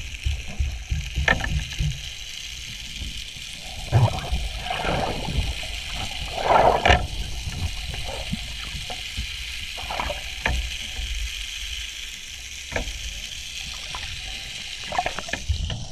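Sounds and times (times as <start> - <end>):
steady hiss: 0.0 - 15.9
water sloshing and bubbling: 0.0 - 15.9
water splashing: 3.2 - 11.2, 13.5 - 15.9.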